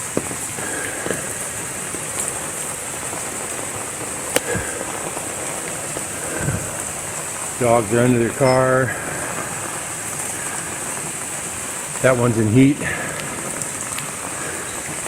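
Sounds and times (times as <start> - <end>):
steady rain falling: 0.0 - 15.0
drips striking hard surface: 8.1 - 9.3.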